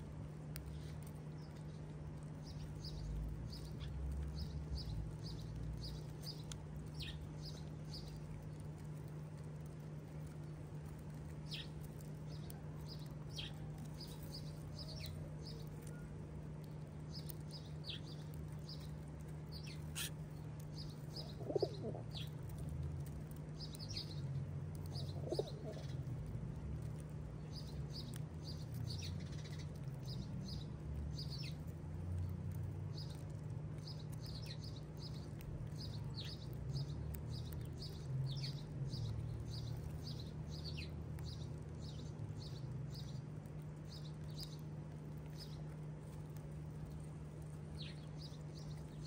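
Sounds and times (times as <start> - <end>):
sparrows chirping: 0.0 - 49.0
steady low hum: 0.0 - 49.0
wing flutters: 21.2 - 22.2, 25.0 - 25.9.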